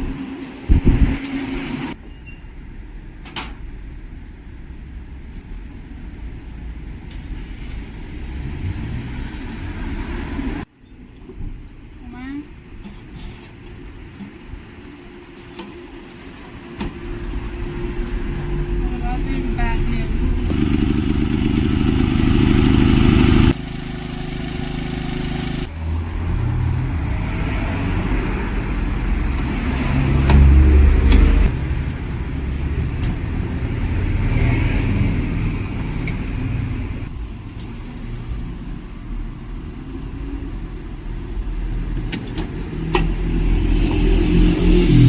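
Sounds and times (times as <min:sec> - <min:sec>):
motor vehicle engine hum: 0:12.8 - 0:38.9.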